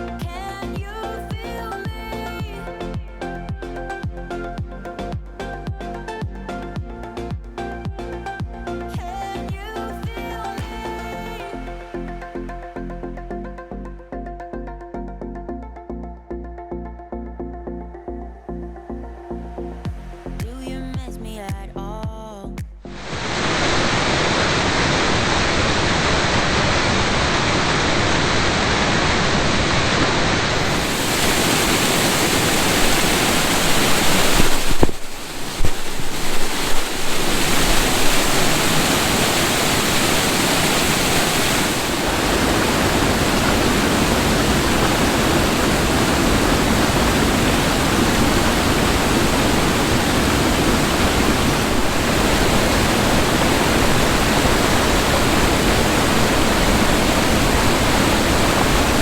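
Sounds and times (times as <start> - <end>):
waterfall rushing: 23.0 - 59.0.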